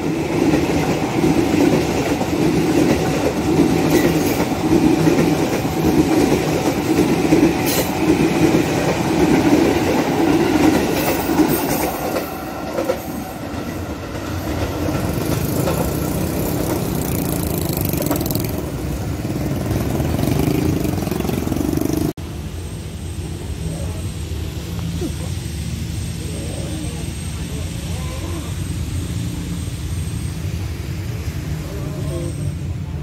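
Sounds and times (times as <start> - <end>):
electric train passing: 0.0 - 33.0
wheels clattering over track: 1.6 - 22.1.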